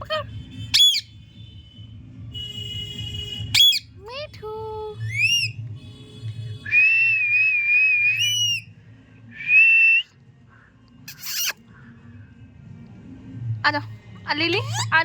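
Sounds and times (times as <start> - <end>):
parrot squawk: 0.7 - 1.1, 3.6 - 3.9, 5.0 - 5.6, 8.1 - 8.6, 11.1 - 11.6, 14.5 - 15.0
parrot whistling: 0.7 - 1.1, 3.6 - 3.8, 5.0 - 5.6, 6.7 - 8.7, 11.1 - 11.6, 14.6 - 14.9.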